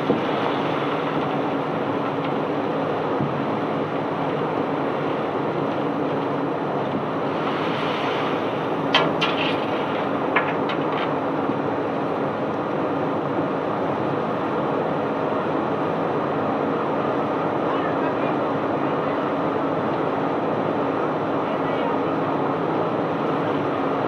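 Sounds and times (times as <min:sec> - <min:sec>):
rushing of discharged stone: 0:08.9 - 0:11.0.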